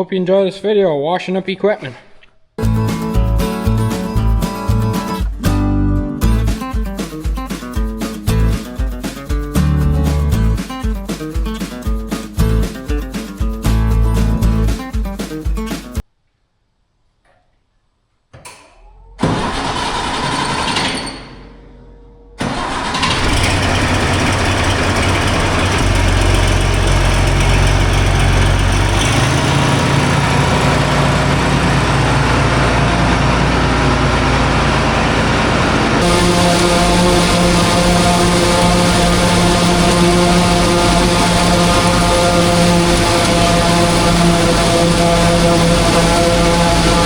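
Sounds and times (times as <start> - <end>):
farm machinery engine running: 19.2 - 21.0, 22.4 - 47.0.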